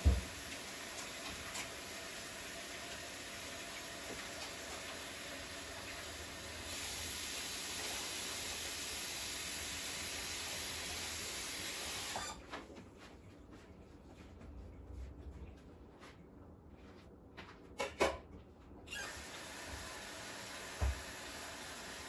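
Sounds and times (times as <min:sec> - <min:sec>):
water running from tap: 0:00.0 - 0:12.4, 0:19.0 - 0:22.0.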